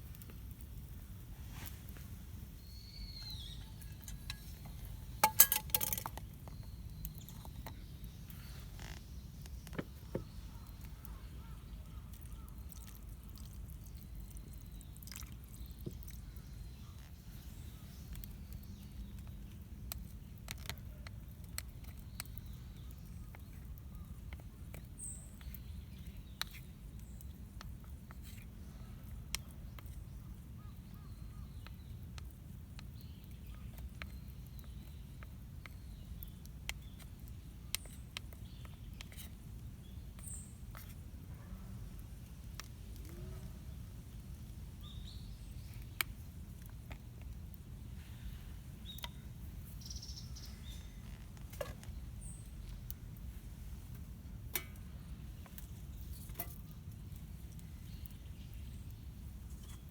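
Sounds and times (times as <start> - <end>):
small clicks and crackles: 0.0 - 2.2, 3.2 - 59.9
bird chirp: 2.5 - 12.7, 48.3 - 53.0.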